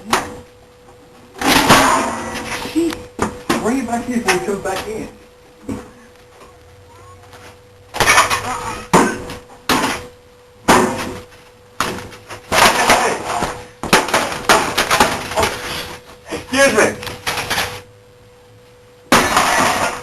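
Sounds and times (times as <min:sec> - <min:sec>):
heavy blows smashing computer: 0:01.4 - 0:02.5, 0:08.0 - 0:15.7, 0:19.1 - 0:20.0.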